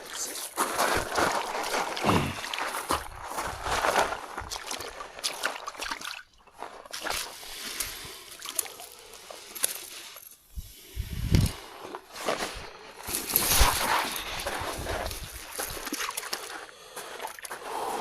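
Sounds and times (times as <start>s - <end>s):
water sloshing and splashing: 0.6s - 9.9s, 11.9s - 17.6s.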